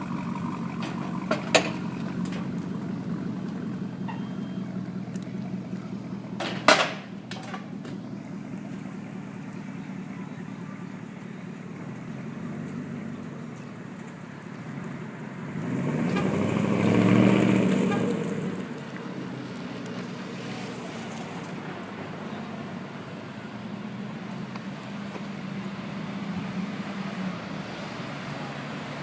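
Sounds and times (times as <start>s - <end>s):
truck engine idling: 0.0s - 15.6s.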